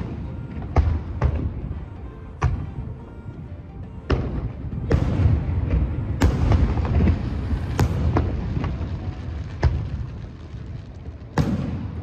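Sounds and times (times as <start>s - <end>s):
firework shells bursting: 5.0s - 12.0s.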